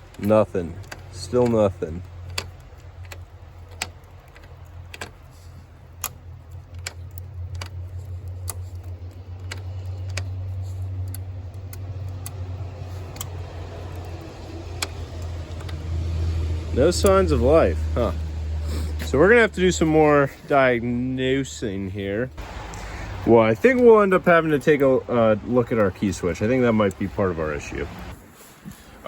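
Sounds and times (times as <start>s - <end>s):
light clicks of hand tools: 0.0s - 17.5s
steady low hum: 0.0s - 28.3s.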